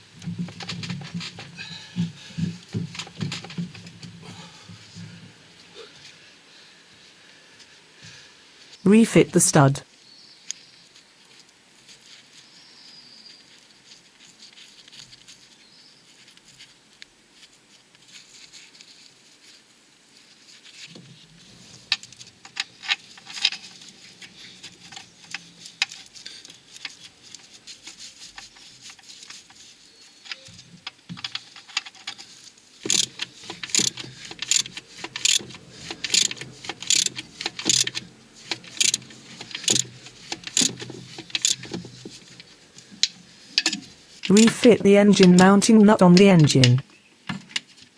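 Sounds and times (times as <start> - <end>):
ratchet wrench strokes: 32.8 - 42.2
metal hand tool clicks: 32.9 - 38.0, 38.6 - 41.7.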